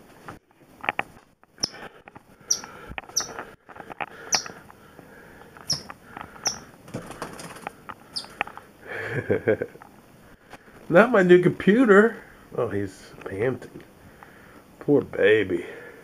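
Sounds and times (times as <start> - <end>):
bird chirping: 1.6 - 1.8, 2.4 - 3.4, 4.2 - 4.6, 5.6 - 6.8, 7.4 - 8.4
bird wings fluttering: 6.5 - 8.4.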